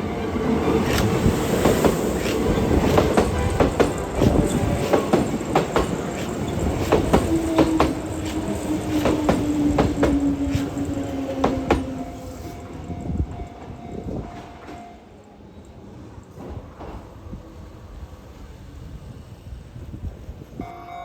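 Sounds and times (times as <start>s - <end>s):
train wheels clacking over joints: 0.6s - 12.4s.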